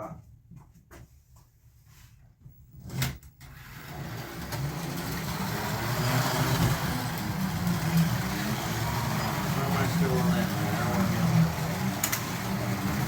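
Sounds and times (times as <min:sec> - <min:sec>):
electric motor whine: 0:03.7 - 0:13.0
slot cars rattling in track: 0:03.8 - 0:13.0.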